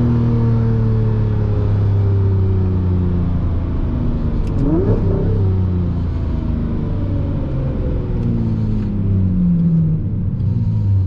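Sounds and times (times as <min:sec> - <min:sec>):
car engine at low revs: 0:00.0 - 0:11.0
rising whine: 0:04.4 - 0:08.8.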